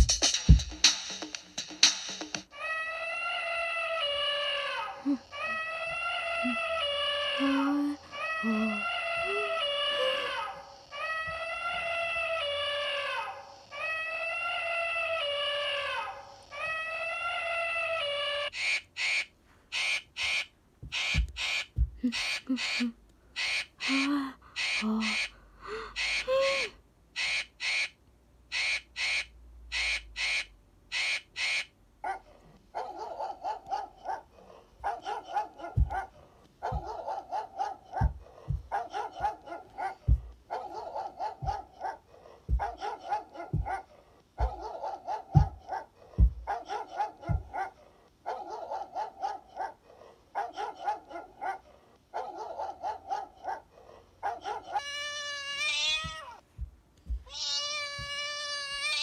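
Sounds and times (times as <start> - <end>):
harsh bird cawing: 27.2 - 31.7
dog barking: 32.0 - 54.8
cat meowing: 54.6 - 56.4, 57.2 - 59.0.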